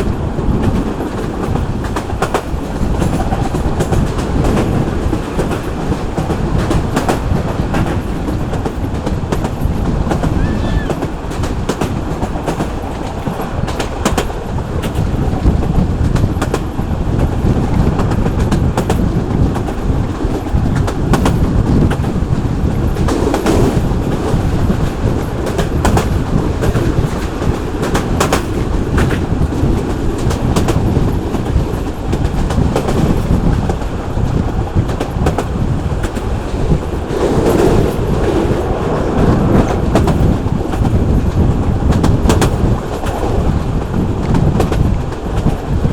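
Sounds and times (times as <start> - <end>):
train rumbling on track: 0.0 - 45.9
wheels clicking over rail joints: 0.0 - 45.9.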